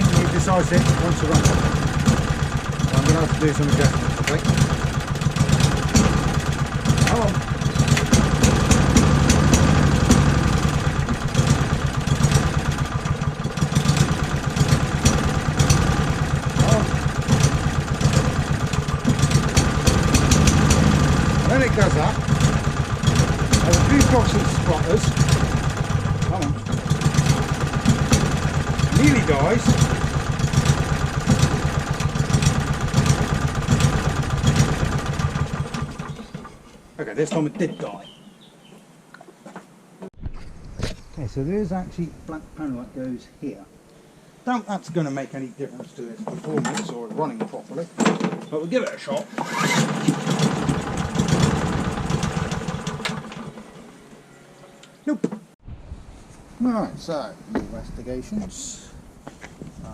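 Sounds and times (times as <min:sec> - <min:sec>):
lawnmower engine idling unsteadily: 0:00.0 - 0:37.0, 0:48.9 - 0:54.1.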